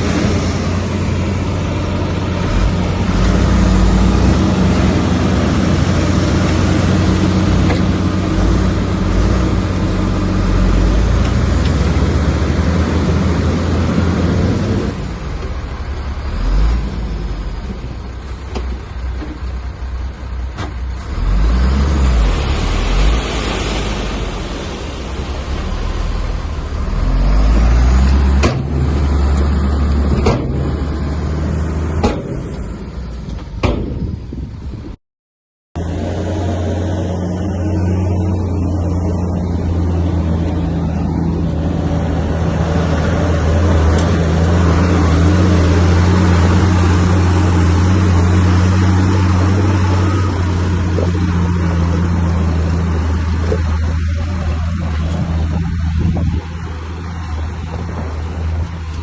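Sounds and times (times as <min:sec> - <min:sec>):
bulldozer diesel engine revving: 0:00.0 - 0:33.2, 0:35.8 - 0:59.0
sharp knocks: 0:33.6 - 0:34.1.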